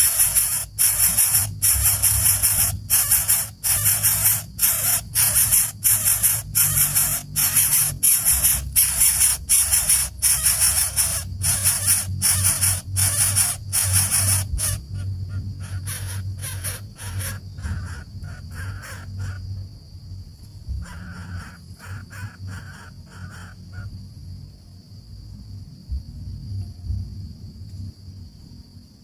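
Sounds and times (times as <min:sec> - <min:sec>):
nestlings begging raspy calls: 0:00.0 - 0:19.4, 0:20.8 - 0:23.9.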